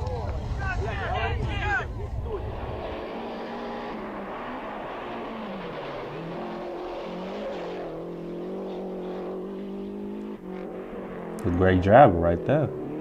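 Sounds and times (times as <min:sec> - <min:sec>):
rally car engine revving: 0:01.9 - 0:13.0.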